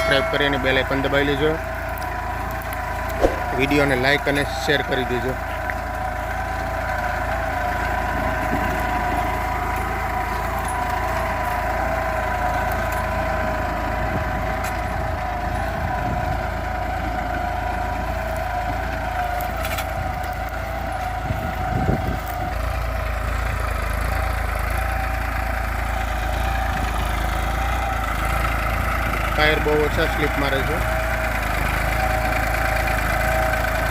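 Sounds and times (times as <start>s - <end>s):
steady engine whine: 0.0s - 33.9s
tractor diesel engine droning: 0.0s - 33.9s.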